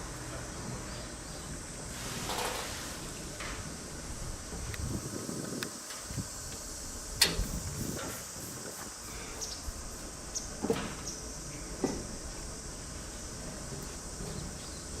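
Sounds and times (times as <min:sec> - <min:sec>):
high insect chirring: 0:03.8 - 0:15.0.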